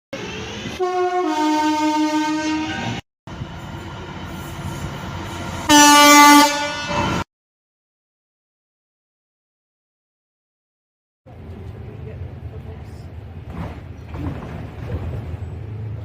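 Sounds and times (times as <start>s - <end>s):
passing train rumble: 0.1s - 7.2s, 11.3s - 16.0s
two-tone train horn: 0.8s - 3.0s, 5.6s - 7.2s.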